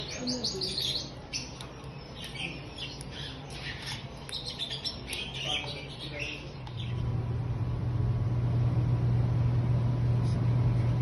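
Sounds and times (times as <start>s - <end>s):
songbirds chirping: 0.0s - 7.8s.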